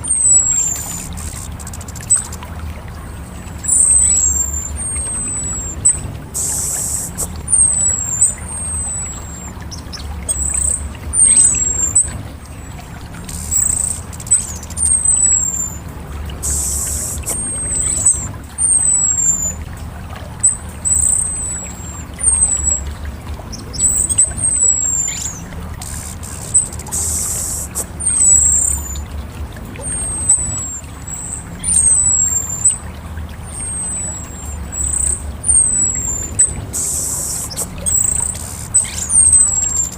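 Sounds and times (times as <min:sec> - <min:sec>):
thrush singing high whistles: 0:00.0 - 0:02.4, 0:03.0 - 0:19.7, 0:20.4 - 0:29.1, 0:29.7 - 0:39.9
steady low rumble: 0:00.0 - 0:39.9
scratchy bird chattering: 0:03.6 - 0:15.8, 0:16.4 - 0:19.6, 0:23.7 - 0:29.0, 0:33.5 - 0:39.9.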